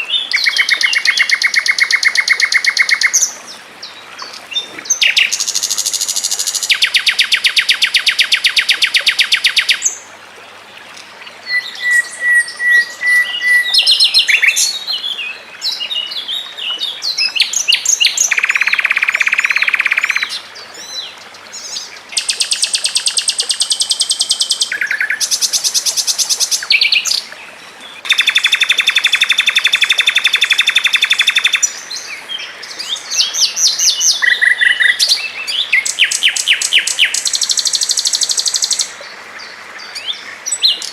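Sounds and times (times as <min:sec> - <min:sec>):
songbird trilling: 0:00.2 - 0:03.3, 0:17.2 - 0:20.4, 0:28.0 - 0:31.8, 0:32.9 - 0:38.9
bird chirps: 0:17.4 - 0:20.4, 0:28.0 - 0:31.7.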